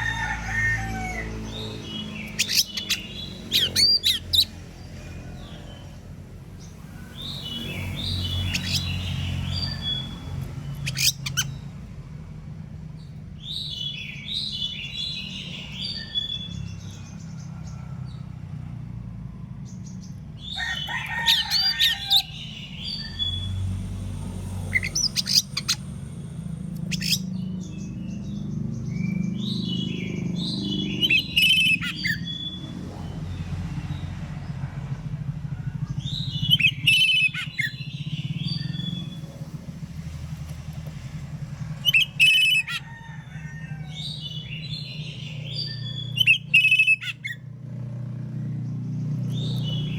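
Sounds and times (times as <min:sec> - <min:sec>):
steady low rumble: 0:21.4 - 0:46.2
bird singing whistled notes: 0:44.2 - 0:47.4.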